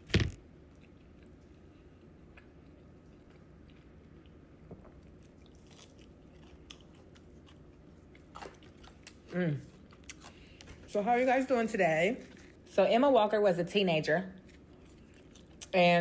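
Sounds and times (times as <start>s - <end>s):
chewing and biting: 5.0s - 10.7s, 14.4s - 15.8s.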